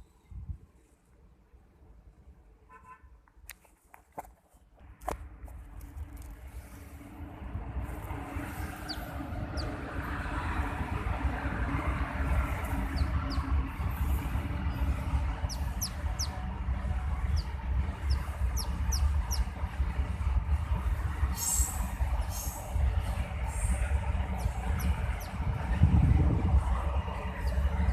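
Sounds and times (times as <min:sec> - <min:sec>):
low rumble: 0:05.6 - 0:27.9
small bird peeping: 0:08.4 - 0:09.9, 0:12.6 - 0:13.5, 0:15.4 - 0:16.4, 0:17.3 - 0:19.5, 0:24.4 - 0:25.4.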